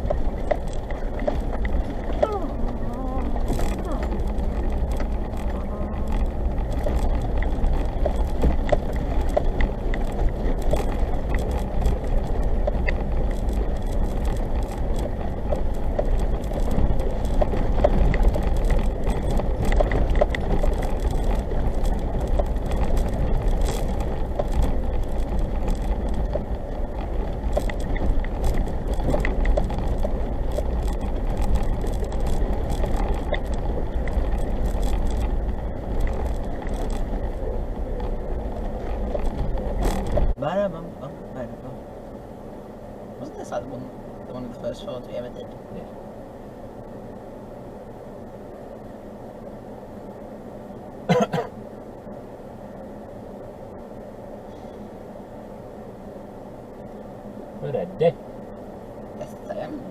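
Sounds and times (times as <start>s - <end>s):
bodywork rattles and clicks: 0.0s - 40.6s
engine and tyre drone: 0.0s - 59.9s.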